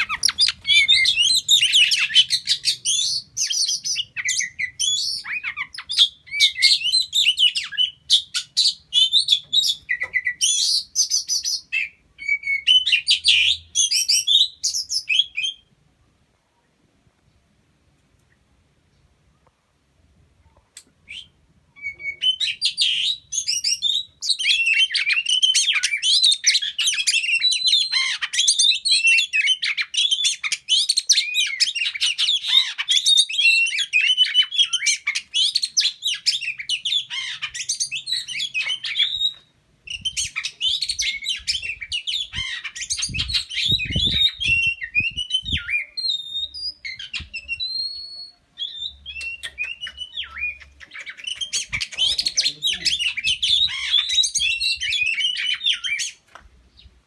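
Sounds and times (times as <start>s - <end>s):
bird singing whistles and chirps: 0.0s - 15.7s, 21.0s - 56.9s.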